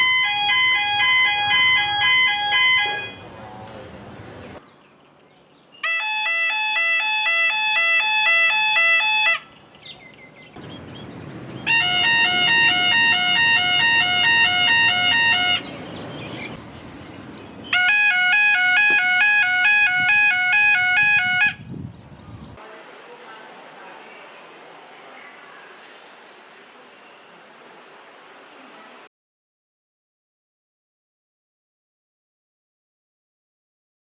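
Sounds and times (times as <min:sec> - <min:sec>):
background noise: 0:21.7 - 0:29.1.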